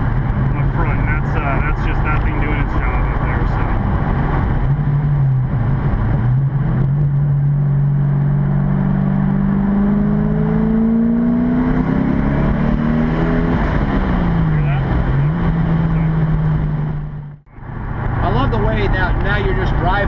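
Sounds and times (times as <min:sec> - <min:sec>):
car engine accelerating through gears: 0:00.0 - 0:19.9.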